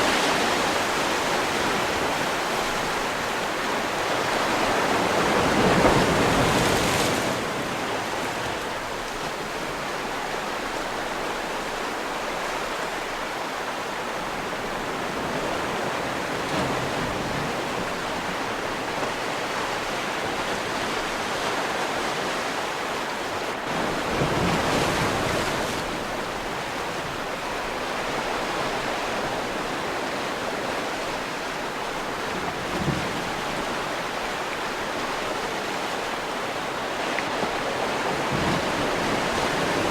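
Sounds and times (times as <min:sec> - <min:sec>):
sea waves washing on shore: 0:00.0 - 0:39.9.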